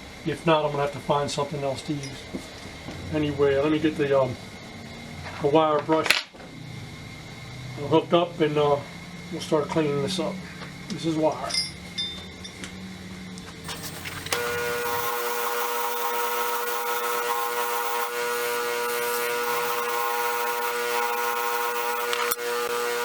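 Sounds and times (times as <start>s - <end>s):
motor whine: 12.6s - 23.0s
wire brush hissing on metal: 13.6s - 23.0s.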